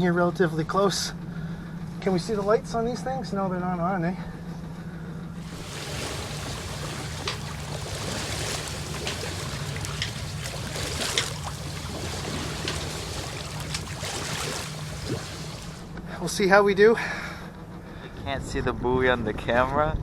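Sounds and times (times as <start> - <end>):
steady low hum: 4.7 - 18.2
water splashing along boat hull: 5.4 - 16.0.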